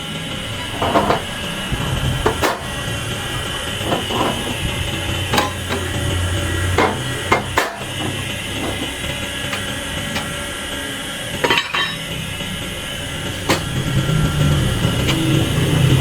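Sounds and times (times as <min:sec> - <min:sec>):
mechanical hum: 0:00.0 - 0:16.0
metal parts clinking: 0:05.3 - 0:05.9, 0:06.8 - 0:10.5, 0:11.4 - 0:12.1.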